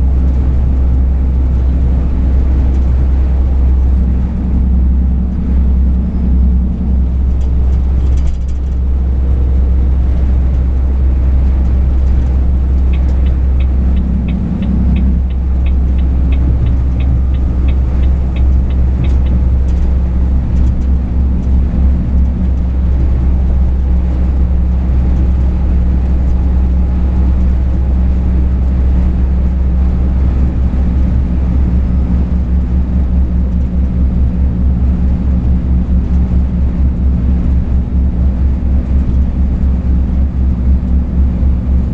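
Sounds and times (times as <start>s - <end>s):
truck engine droning: 0.0s - 41.9s
light regular ticking: 11.4s - 23.0s.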